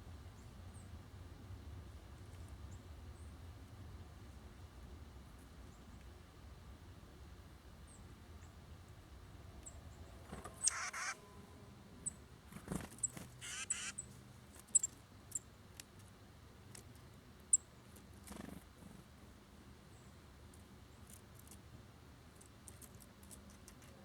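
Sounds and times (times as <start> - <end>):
songbirds high call notes: 9.6 - 12.3, 13.0 - 14.1
harsh buzzy bird calls: 10.2 - 14.1.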